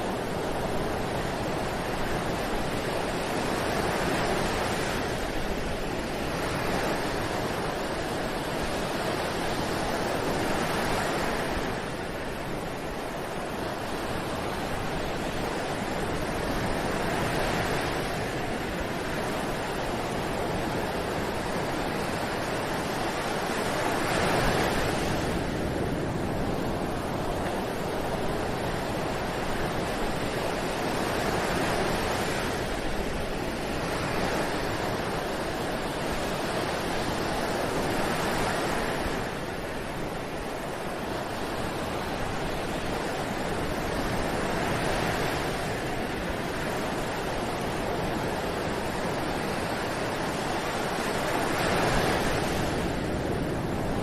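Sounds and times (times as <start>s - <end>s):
ocean waves washing onto beach: 0.0s - 54.0s.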